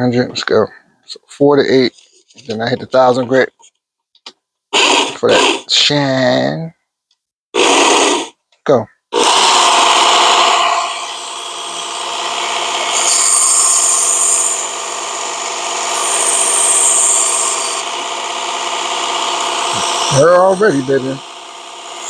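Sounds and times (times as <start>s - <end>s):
electric belt sharpener running: 9.2s - 22.0s.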